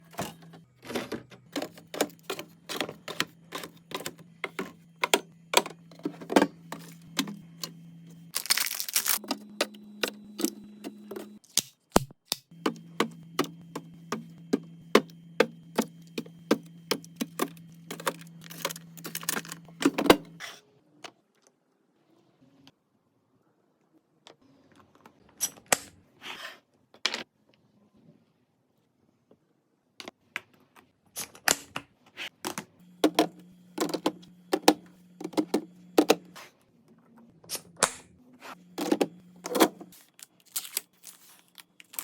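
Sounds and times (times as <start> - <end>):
fridge humming: 0.0 - 11.4, 12.5 - 20.4, 32.8 - 36.4, 38.6 - 40.0
containers clicking and clacking: 0.1 - 7.7.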